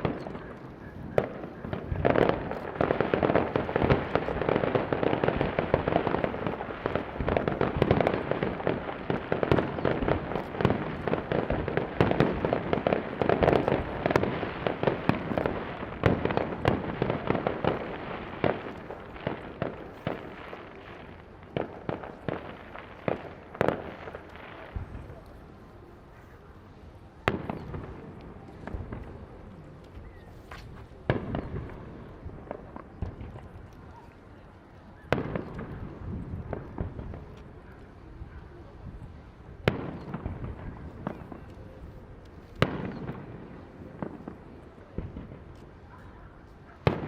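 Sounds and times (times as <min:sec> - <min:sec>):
rapid firework bangs: 0:00.0 - 0:25.2, 0:42.6 - 0:47.0.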